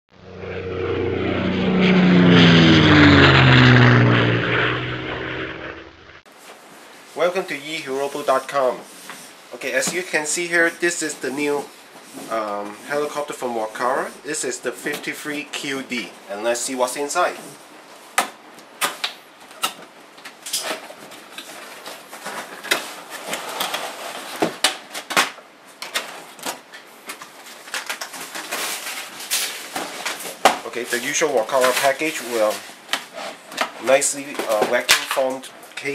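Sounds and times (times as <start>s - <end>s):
aircraft flying past: 0.1s - 6.2s
rustling scrapes: 20.6s - 24.4s, 27.3s - 34.6s.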